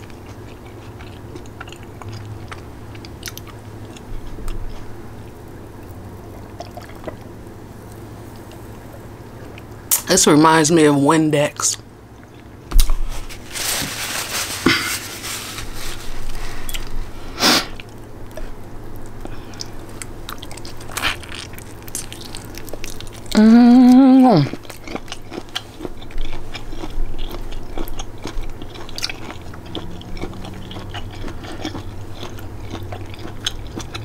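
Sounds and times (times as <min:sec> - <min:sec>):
person chewing food: 0:00.0 - 0:09.9, 0:14.6 - 0:34.0
loud voiced sound: 0:23.4 - 0:24.5.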